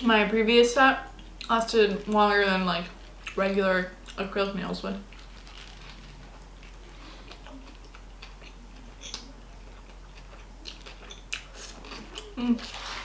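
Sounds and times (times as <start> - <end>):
person chewing food: 5.0 - 13.0.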